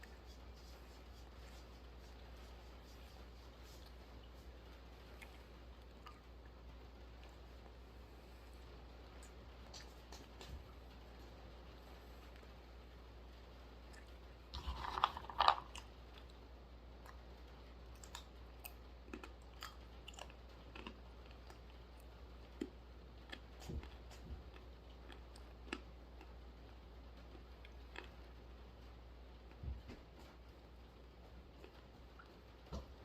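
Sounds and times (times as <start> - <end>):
chewing crunchy nuts: 13.9 - 16.4, 17.9 - 26.4, 27.3 - 28.3.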